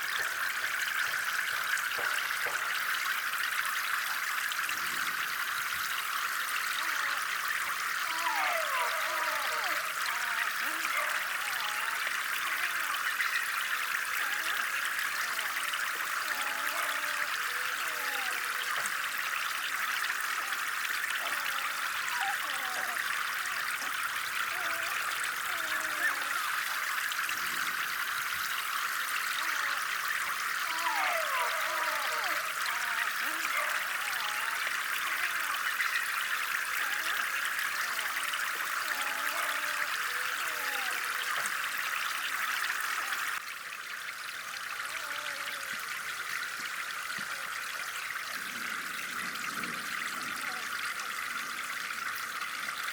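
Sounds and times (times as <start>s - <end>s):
water trickling into pond: 0.0s - 52.9s.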